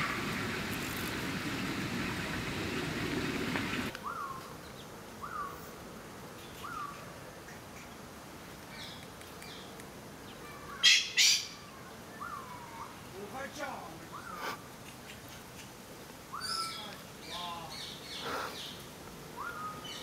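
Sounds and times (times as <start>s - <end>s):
outdoor background murmur: 0.0s - 20.0s
bird calling: 1.5s - 5.6s, 6.4s - 8.0s, 10.3s - 13.2s, 13.9s - 20.0s.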